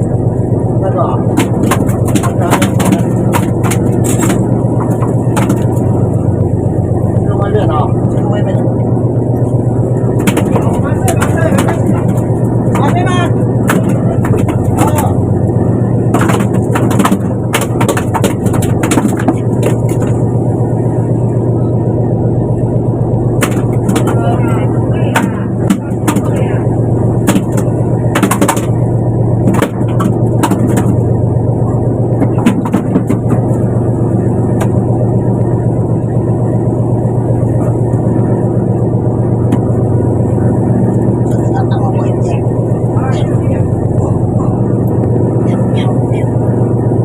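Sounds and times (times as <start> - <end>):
boat engine humming: 0.0 - 47.0
knocks and clatters on board: 1.3 - 5.9, 10.2 - 15.2, 16.1 - 20.2, 23.4 - 24.2, 25.1 - 26.4, 27.2 - 28.8, 29.4 - 31.0, 32.2 - 33.6.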